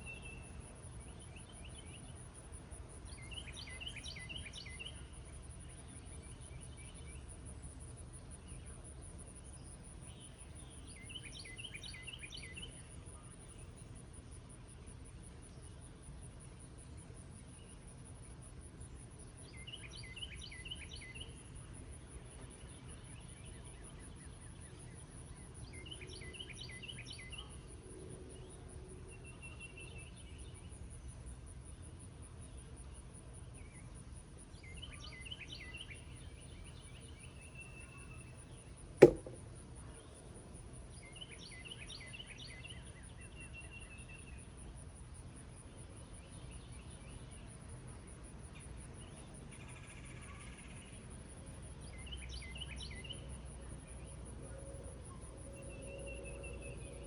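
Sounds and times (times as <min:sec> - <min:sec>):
songbird singing with a trill: 0:00.0 - 0:07.4, 0:08.2 - 0:13.9, 0:18.9 - 0:21.6, 0:22.2 - 0:27.7, 0:28.4 - 0:30.8, 0:34.5 - 0:39.4, 0:40.9 - 0:44.6, 0:51.8 - 0:57.0
high pulsing insect call: 0:00.0 - 0:31.8, 0:40.6 - 0:57.0
sharp knock: 0:39.0 - 0:39.4.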